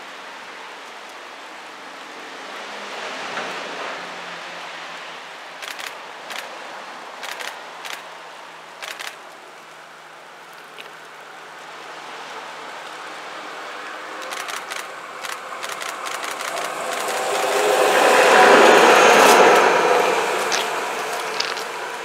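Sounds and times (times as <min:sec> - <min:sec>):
distant train rushing noise: 0:01.8 - 0:09.5, 0:11.2 - 0:22.0
short sharp clicks: 0:05.6 - 0:06.5.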